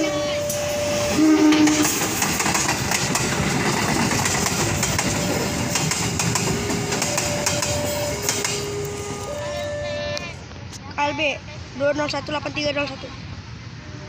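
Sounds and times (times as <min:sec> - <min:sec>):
wheels clattering on rails: 0:00.0 - 0:09.9
diesel locomotive engine rumble: 0:00.0 - 0:14.0.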